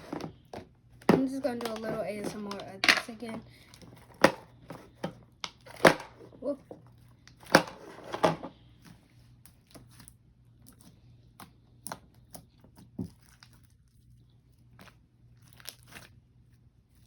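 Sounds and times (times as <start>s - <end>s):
slime squished by hand: 9.5s - 17.0s.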